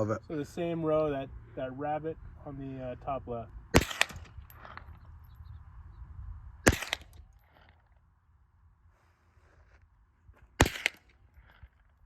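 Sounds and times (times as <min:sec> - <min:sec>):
gunshots: 0:03.7 - 0:04.9, 0:06.6 - 0:07.3, 0:10.6 - 0:11.2.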